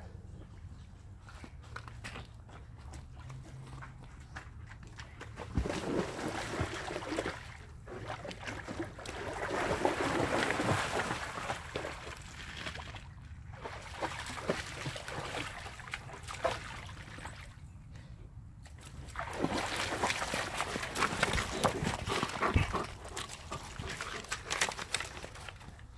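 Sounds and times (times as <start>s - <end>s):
dog splashing in water: 5.0s - 17.5s, 18.8s - 25.9s.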